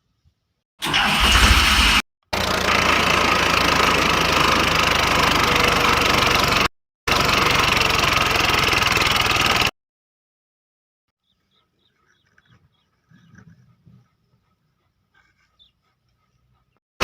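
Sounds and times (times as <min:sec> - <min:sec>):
motor running with fast pulse: 0:00.8 - 0:09.7.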